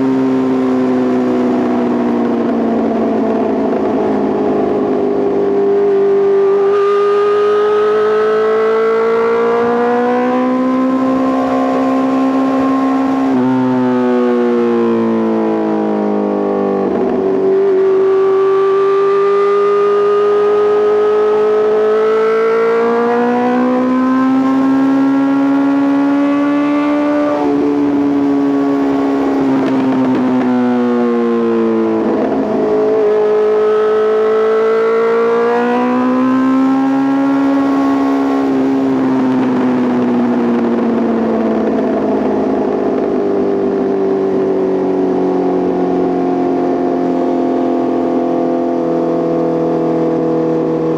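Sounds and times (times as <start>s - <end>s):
motorcycle engine revving: 0.0s - 50.9s
gear changes: 16.8s - 50.9s.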